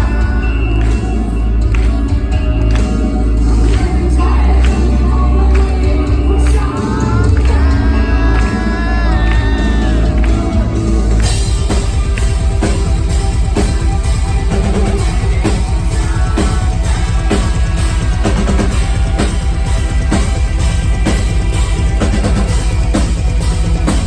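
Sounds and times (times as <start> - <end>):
heavy metal band playing: 0.0 - 24.0
fast bass drum pounding: 5.8 - 24.0.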